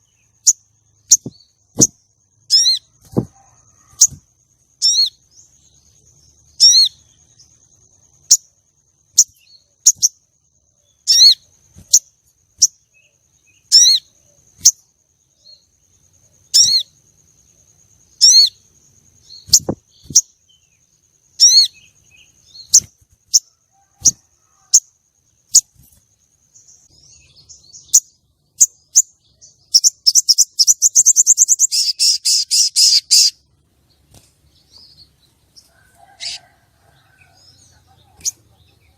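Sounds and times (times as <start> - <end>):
bird high chirps and chips: 0.4 - 4.2, 4.8 - 5.2, 6.5 - 7.0, 11.0 - 12.8, 13.5 - 14.8, 16.5 - 16.9, 19.2 - 20.4, 21.4 - 24.8, 27.6 - 33.4.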